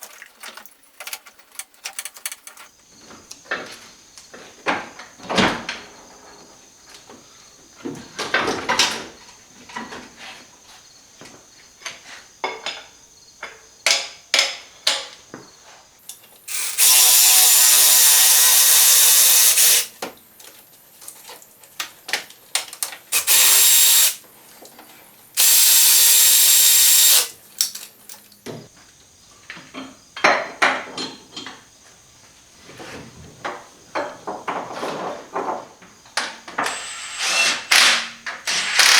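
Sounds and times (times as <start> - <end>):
metal tools clinking: 0.0 - 2.8, 25.4 - 28.4
power tool running: 16.5 - 19.9, 23.2 - 24.2, 25.4 - 27.8, 36.6 - 37.9, 38.5 - 38.9.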